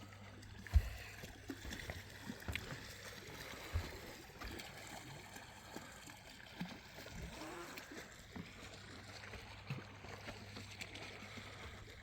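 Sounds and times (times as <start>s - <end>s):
water lapping against boat hull: 0.0s - 12.0s
soft low thumps: 0.6s - 2.0s.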